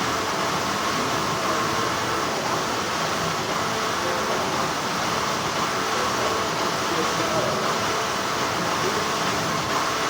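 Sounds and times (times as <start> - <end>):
factory machinery humming: 0.0 - 10.0.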